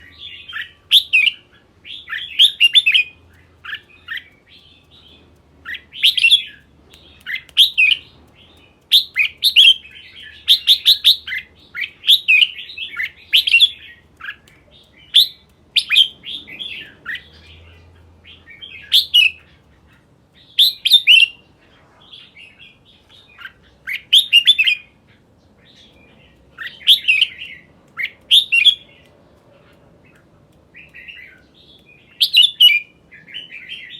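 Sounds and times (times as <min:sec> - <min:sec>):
bird singing whistled notes: 0:00.0 - 0:05.1, 0:05.7 - 0:08.1, 0:08.9 - 0:13.9, 0:15.0 - 0:17.6, 0:18.3 - 0:19.4, 0:20.5 - 0:21.4, 0:23.2 - 0:24.9, 0:26.6 - 0:29.0, 0:30.8 - 0:33.9.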